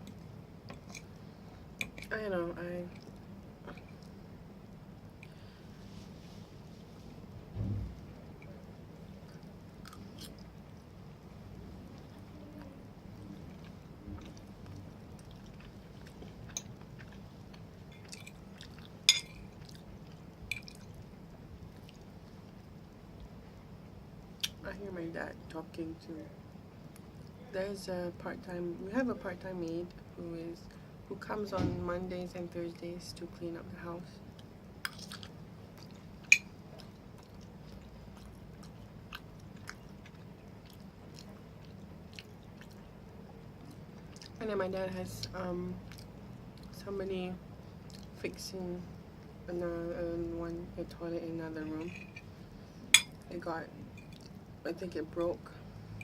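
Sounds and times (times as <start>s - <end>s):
chewing and wet mouth sounds: 2.9s - 4.2s, 8.4s - 23.4s, 34.3s - 44.4s, 45.2s - 46.8s, 47.7s - 48.2s, 53.9s - 54.5s.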